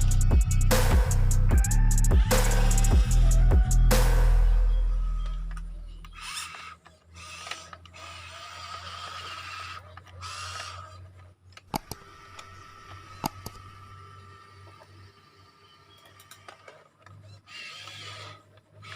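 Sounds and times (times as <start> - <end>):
toy electric motors whining: 0.0 - 0.7, 4.5 - 18.9
background music: 0.0 - 6.0
sharp clicks: 11.5 - 13.8.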